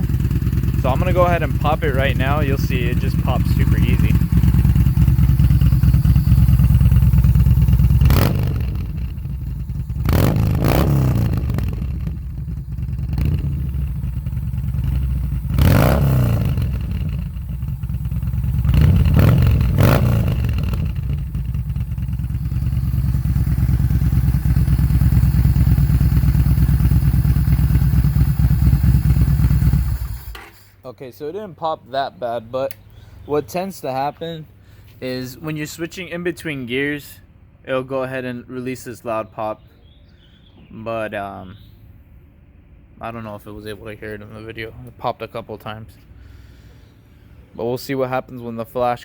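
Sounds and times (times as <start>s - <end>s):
motorcycle engine idling and blipped: 0.0s - 30.8s.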